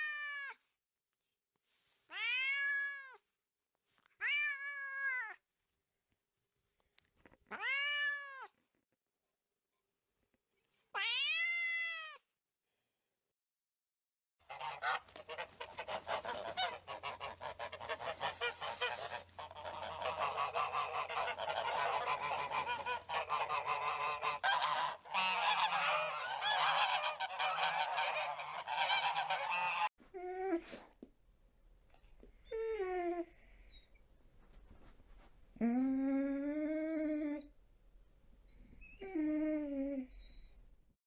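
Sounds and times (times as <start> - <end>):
chorus of animal calls: 14.5 - 29.9.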